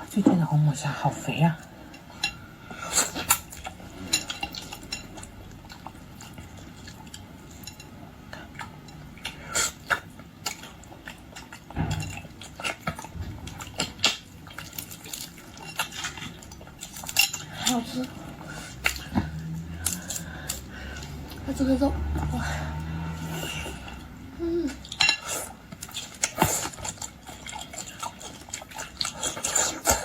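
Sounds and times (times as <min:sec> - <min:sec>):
chewing and mouth sounds: 0:02.9 - 0:30.0
utensils clinking against dishes: 0:04.0 - 0:05.3, 0:14.0 - 0:18.1, 0:24.8 - 0:28.6.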